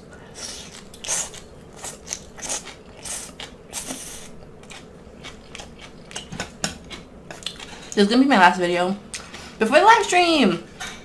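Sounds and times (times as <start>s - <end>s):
crunchy chewing: 0.4s - 7.9s.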